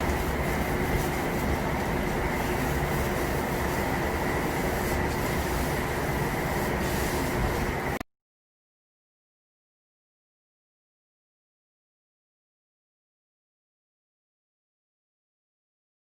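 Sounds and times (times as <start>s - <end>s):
steady machine noise with whine: 0.0s - 8.0s.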